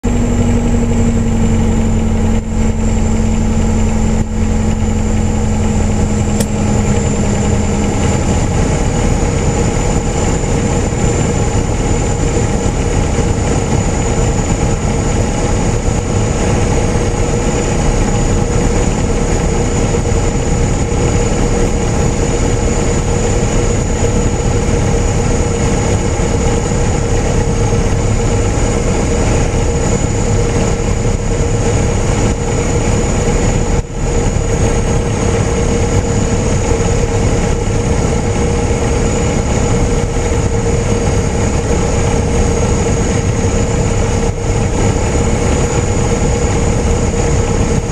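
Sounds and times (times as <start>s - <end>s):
airplane engine and propeller: 0.0s - 47.9s
low hum: 0.0s - 47.9s.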